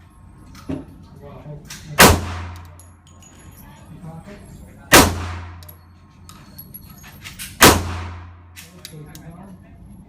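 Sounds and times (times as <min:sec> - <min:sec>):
pistol shot with ringing decay: 0:02.0 - 0:02.6, 0:04.9 - 0:05.6, 0:07.6 - 0:08.3.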